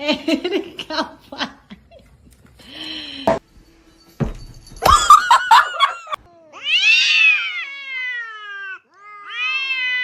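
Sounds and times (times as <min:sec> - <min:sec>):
cat meowing: 0:06.5 - 0:10.0.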